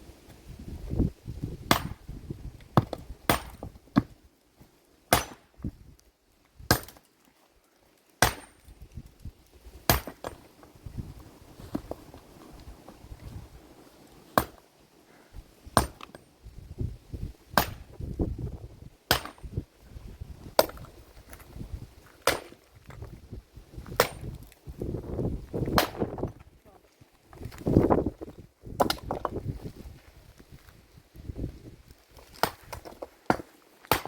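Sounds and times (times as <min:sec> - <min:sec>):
axe chopping wood: 0:01.7 - 0:02.0, 0:02.8 - 0:04.2, 0:05.1 - 0:05.5, 0:06.7 - 0:07.0, 0:08.2 - 0:08.6, 0:09.9 - 0:10.4, 0:14.4 - 0:14.6, 0:15.8 - 0:16.2, 0:17.6 - 0:17.9, 0:19.1 - 0:19.5, 0:22.2 - 0:22.6, 0:25.8 - 0:26.3, 0:28.8 - 0:29.4, 0:32.3 - 0:34.0.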